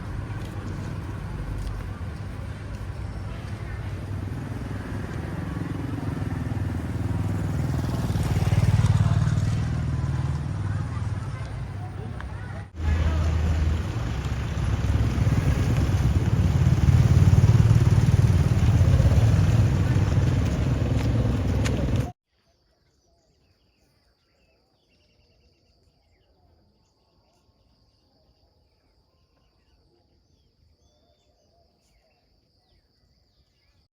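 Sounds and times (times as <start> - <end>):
engine running: 0.0 - 22.2
faint bird or insect chirps: 22.3 - 33.9.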